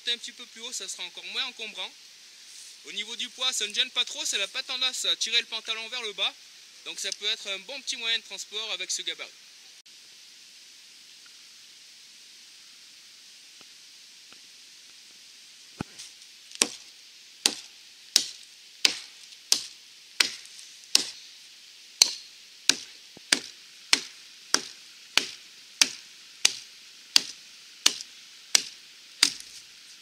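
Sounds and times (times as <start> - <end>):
hatchet chopping a log: 16.6 - 16.8, 17.4 - 21.2, 22.0 - 29.5.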